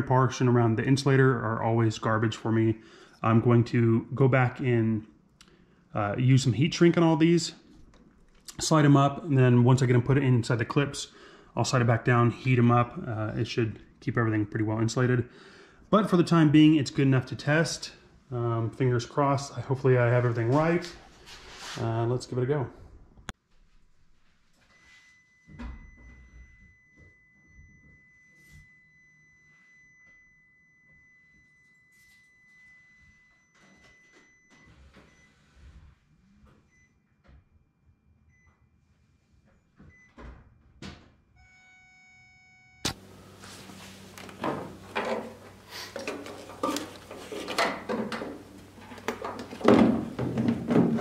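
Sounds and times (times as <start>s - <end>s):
low steady hum: 41.4s - 50.8s.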